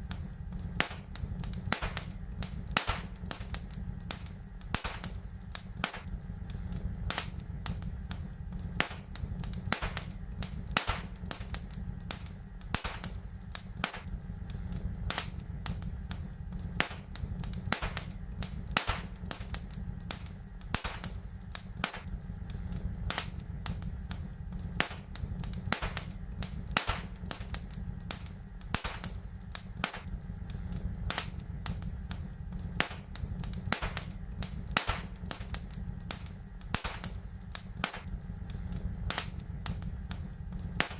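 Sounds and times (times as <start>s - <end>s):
low rumble of burning: 0.0s - 40.9s
wood fire crackling: 0.0s - 40.9s.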